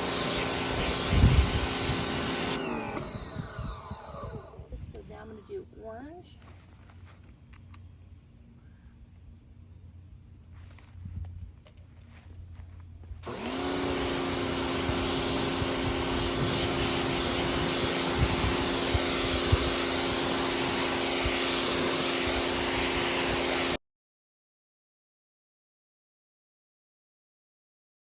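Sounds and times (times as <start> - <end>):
water jet hissing: 0.0 - 3.4, 13.2 - 23.8
pressure washer motor and pump: 0.0 - 5.0, 13.2 - 23.8.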